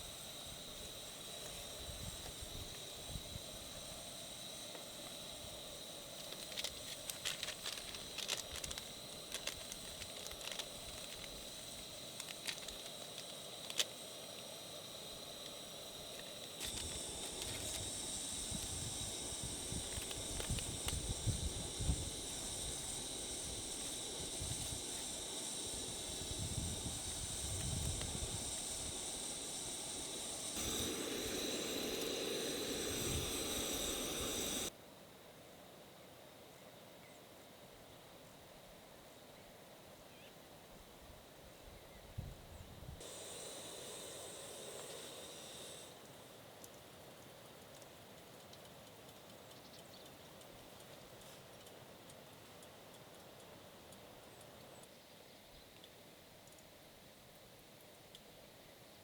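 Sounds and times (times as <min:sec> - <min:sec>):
rain hissing: 0:00.0 - 0:34.7, 0:43.0 - 0:46.3.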